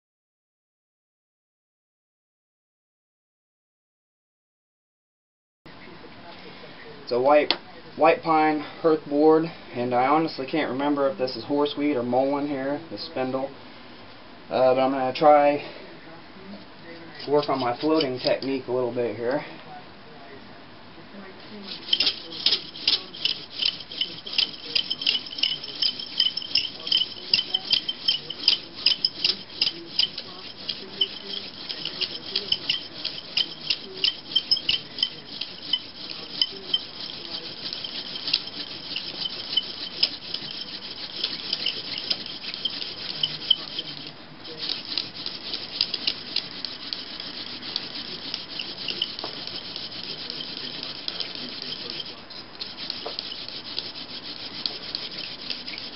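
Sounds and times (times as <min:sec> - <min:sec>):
wooden spindle rubbing and squeaking: 0:17.2 - 0:18.5, 0:21.5 - 0:55.9.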